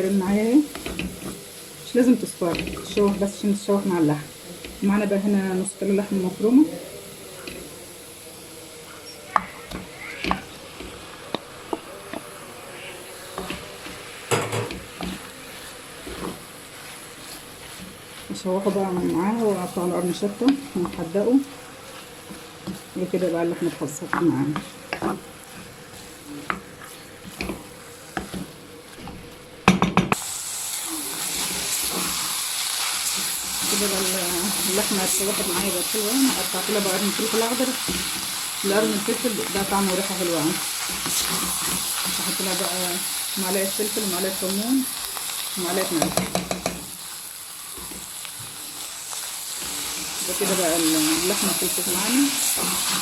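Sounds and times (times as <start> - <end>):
meat frying with faint sizzle: 0.0 - 53.0
spoon stirring and scraping: 9.0 - 29.3, 31.2 - 42.7, 47.7 - 53.0
spoon knocking against pot: 46.0 - 46.8.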